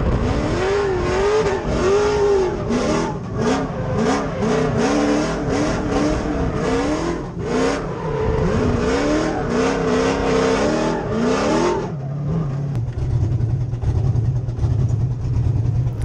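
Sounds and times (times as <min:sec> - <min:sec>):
car engine revving: 0:00.0 - 0:16.0
car engine idling: 0:12.7 - 0:16.0.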